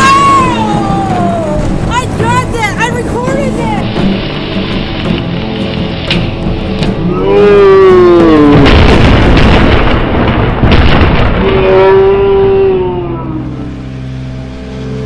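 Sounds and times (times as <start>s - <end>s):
person yelling: 0.0s - 3.1s, 7.1s - 8.6s
thunder boom and rumble: 0.0s - 3.9s, 7.4s - 13.7s.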